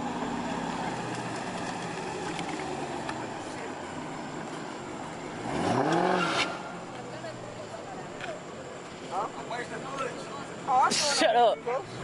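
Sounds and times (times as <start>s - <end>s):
car engine revving: 0.0s - 7.0s
crowd and street noise: 0.0s - 12.0s.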